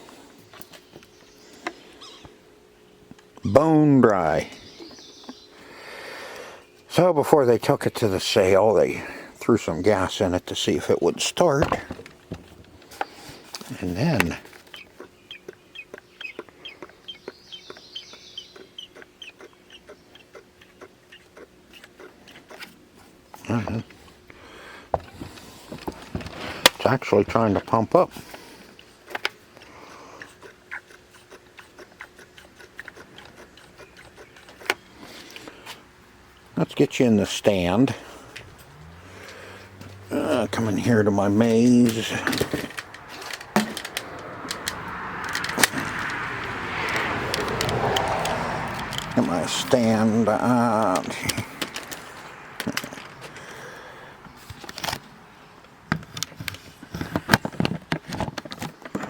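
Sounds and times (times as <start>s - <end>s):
equipment clicking and knocking: 41.8s - 46.2s.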